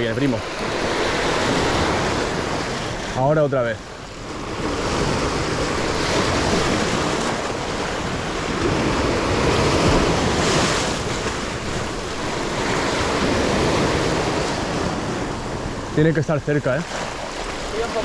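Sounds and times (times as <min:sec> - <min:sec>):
surf washing on rocks: 0:00.0 - 0:18.0
wind buffeting microphone: 0:04.4 - 0:16.0.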